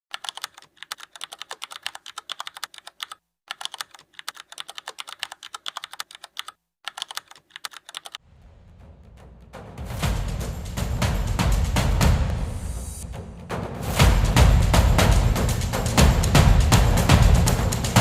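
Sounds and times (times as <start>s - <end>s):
computer keyboard typing: 0.1s - 8.2s.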